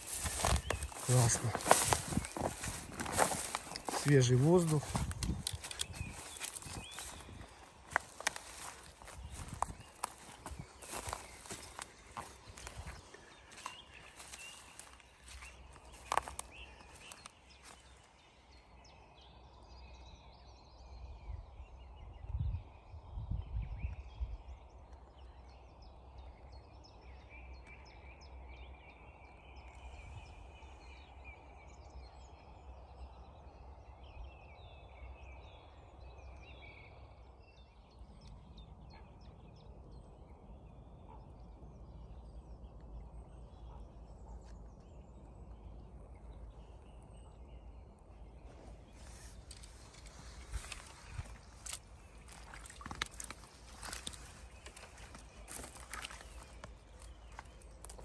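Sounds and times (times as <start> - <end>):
steady outdoor hiss: 0.0 - 4.9
songbirds chirping and whistling: 0.0 - 58.0.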